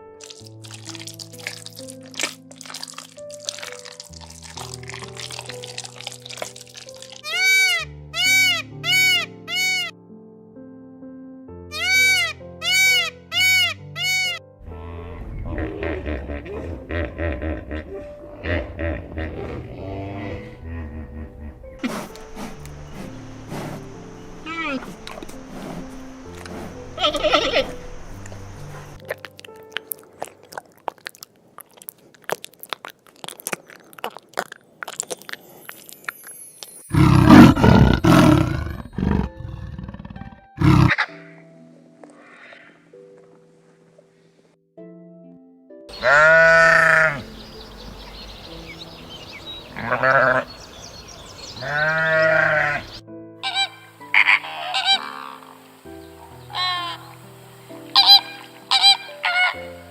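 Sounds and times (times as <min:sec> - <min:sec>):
background music: 0:00.0 - 0:31.2, 0:35.6 - 0:59.9
clicks and crackles: 0:00.2 - 0:07.2
deep animal roar: 0:14.7 - 0:21.9, 0:36.9 - 0:41.0
farm animal bleating: 0:24.4 - 0:25.0, 0:27.0 - 0:27.8, 0:45.9 - 0:47.8, 0:49.6 - 0:55.5, 0:56.4 - 0:57.1.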